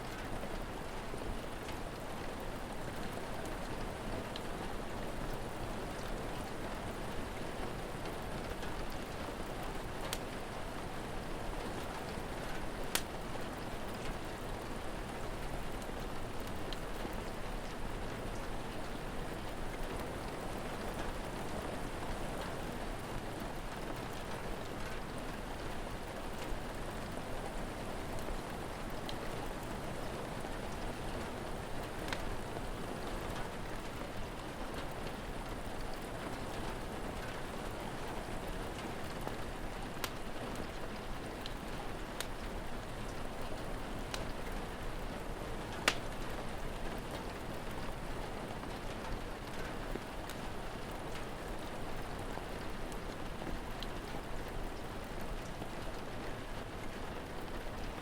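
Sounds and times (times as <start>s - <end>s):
steady rain falling: 0.0s - 58.0s
wood fire popping: 32.1s - 32.4s, 45.8s - 46.1s.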